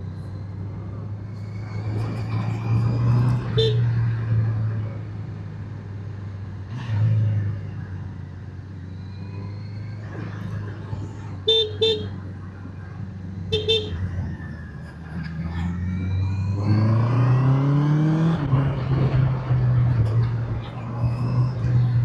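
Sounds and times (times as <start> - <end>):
horn tooting: 3.5 - 3.9, 11.5 - 12.2, 13.5 - 14.0.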